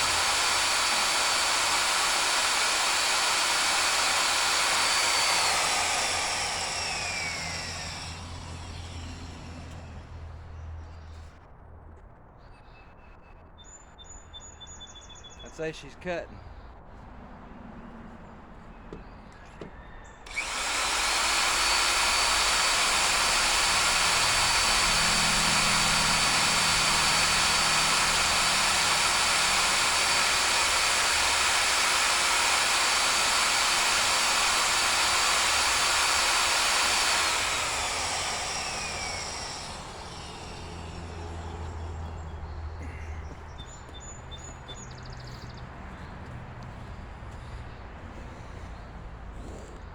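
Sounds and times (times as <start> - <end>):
power drill whining: 0.0 - 10.4, 19.6 - 44.0.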